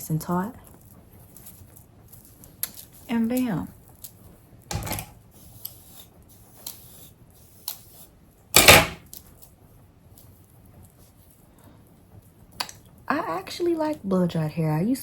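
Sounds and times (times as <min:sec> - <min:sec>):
hair rustling: 0:00.0 - 0:08.4.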